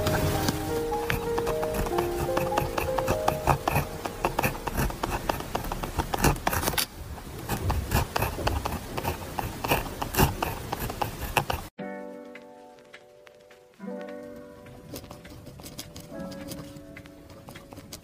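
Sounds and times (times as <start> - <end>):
pen tapping: 0.0 - 6.8, 7.5 - 11.7
pen scratching on paper: 0.0 - 11.8, 14.9 - 18.0.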